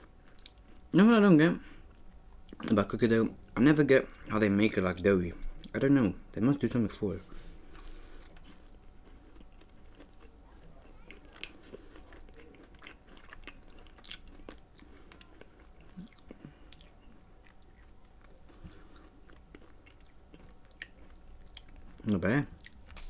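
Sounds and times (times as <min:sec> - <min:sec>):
faint chewing: 0:00.0 - 0:01.0, 0:07.4 - 0:23.0.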